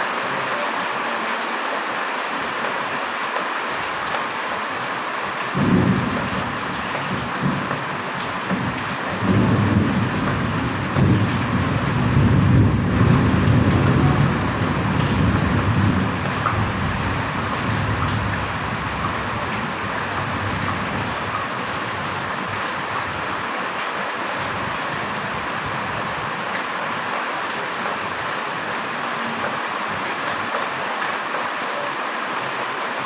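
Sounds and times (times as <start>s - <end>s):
heavy rain hissing: 0.0s - 33.0s
low rumble of thunder: 5.6s - 21.2s.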